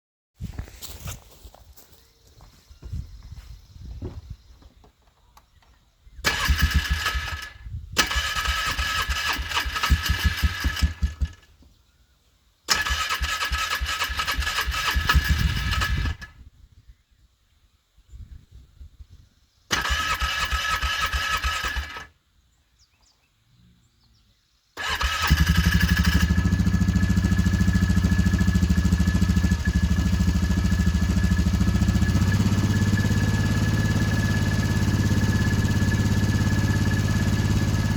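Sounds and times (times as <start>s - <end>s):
starter motor cranking: 6.2s - 11.4s, 12.7s - 16.3s, 19.7s - 22.1s, 24.8s - 28.6s, 29.2s - 37.9s
engine running: 6.2s - 11.5s, 19.7s - 22.1s, 24.8s - 37.9s.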